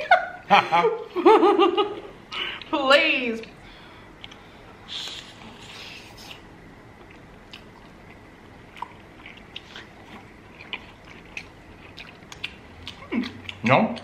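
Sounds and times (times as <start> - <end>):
people chewing food: 3.4 - 14.0.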